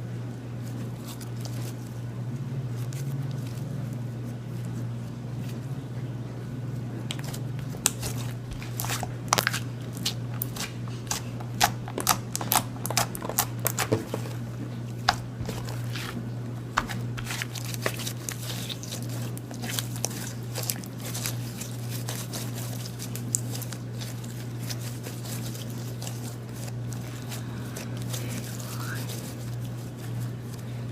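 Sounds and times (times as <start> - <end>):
slime squishing and popping: 7.1 - 14.2.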